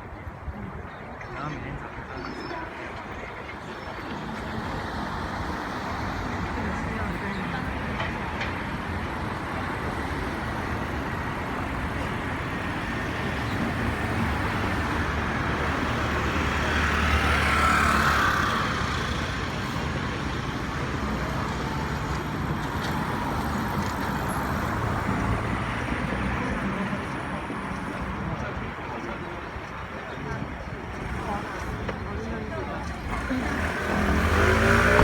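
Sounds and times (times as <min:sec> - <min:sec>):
road traffic: 0:00.0 - 0:35.0.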